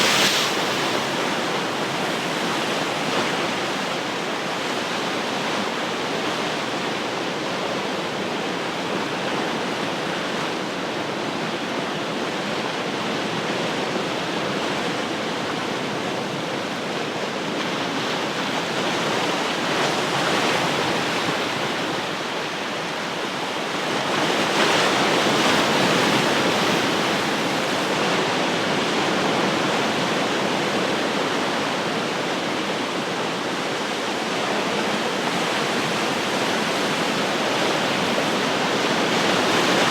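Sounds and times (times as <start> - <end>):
waves breaking: 0.0 - 3.9
ocean surf washing on shore: 0.0 - 39.9.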